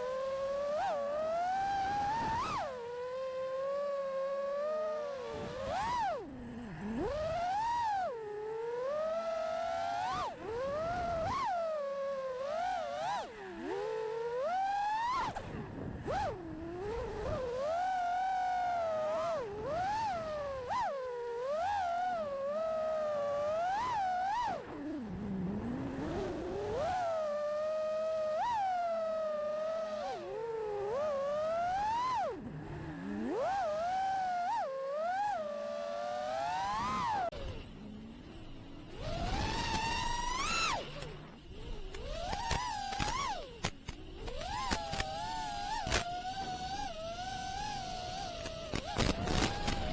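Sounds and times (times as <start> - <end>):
drone motors whining: 26.2 - 49.9.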